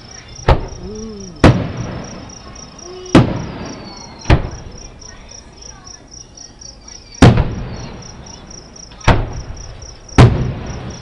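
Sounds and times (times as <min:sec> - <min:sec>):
crickets chirping: 0:00.0 - 0:11.0
distant firework booms: 0:00.4 - 0:04.9, 0:07.2 - 0:11.0.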